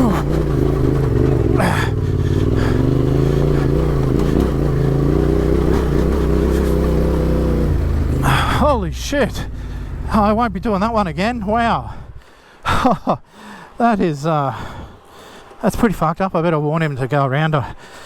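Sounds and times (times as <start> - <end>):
motorcycle engine idling: 0.0 - 12.2.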